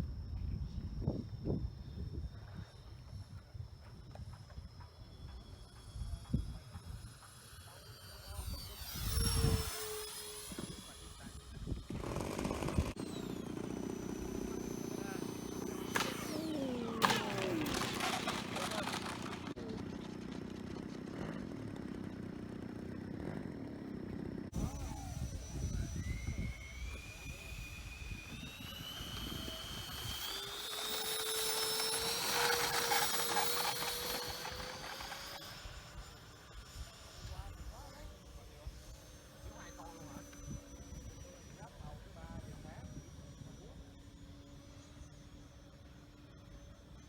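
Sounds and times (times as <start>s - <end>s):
model jet engine fans whining: 0.0s - 47.0s.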